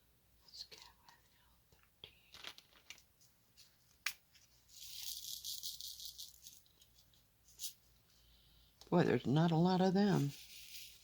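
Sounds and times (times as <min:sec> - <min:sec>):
small beads rattling in a tray: 0:04.7 - 0:06.9, 0:10.2 - 0:11.0.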